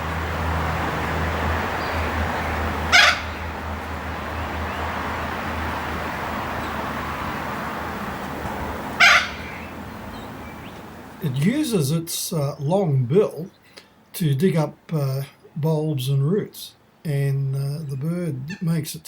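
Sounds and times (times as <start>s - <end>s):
cockatoo harsh calls: 0.0s - 11.2s.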